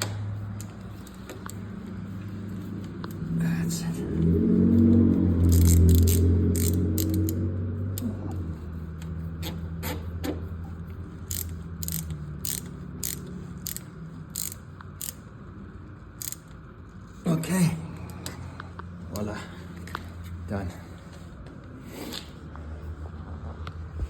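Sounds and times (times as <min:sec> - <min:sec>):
low hum: 0:00.0 - 0:24.0
sharp mechanical clicks: 0:04.2 - 0:08.2, 0:11.2 - 0:15.3, 0:16.2 - 0:16.6.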